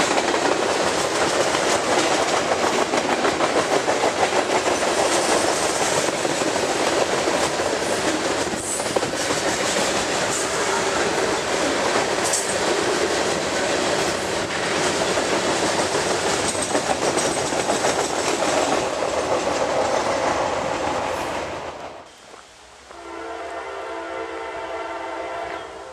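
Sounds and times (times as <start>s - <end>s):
freight train cars rumbling: 0.0s - 22.1s
wheels clicking over rails: 12.0s - 20.6s.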